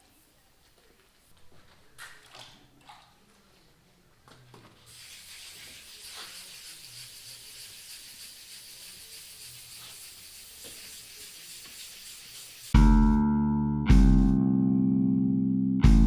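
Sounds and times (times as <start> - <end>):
compressed air hissing: 4.9 - 12.8.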